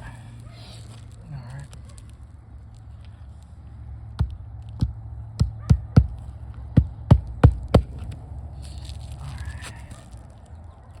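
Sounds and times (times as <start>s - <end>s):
hammer striking roofing nails: 4.2s - 8.1s.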